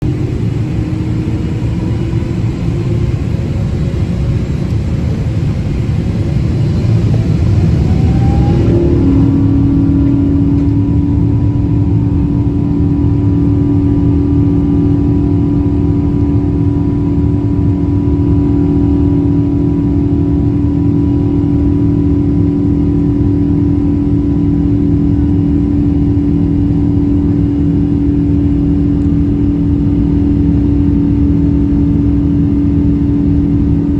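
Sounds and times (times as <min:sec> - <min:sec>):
jet engines spooling up: 0:00.0 - 0:14.2.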